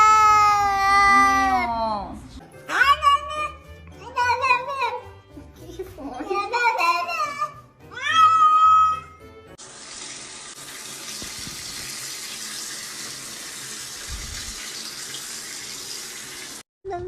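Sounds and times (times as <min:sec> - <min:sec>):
tap water running: 0:09.6 - 0:16.7.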